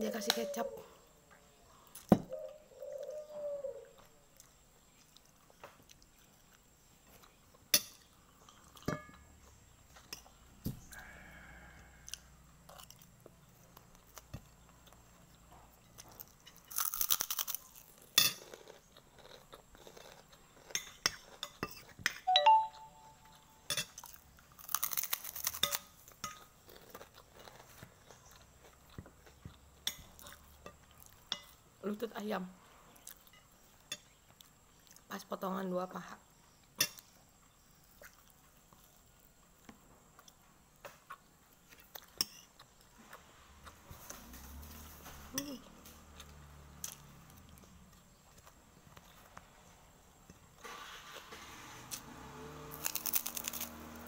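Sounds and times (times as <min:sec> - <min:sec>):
person chewing: 0:12.0 - 0:22.0, 0:23.2 - 0:31.6, 0:52.7 - 0:53.8
crunchy bites: 0:15.9 - 0:21.4, 0:24.0 - 0:31.2, 0:51.9 - 0:54.0.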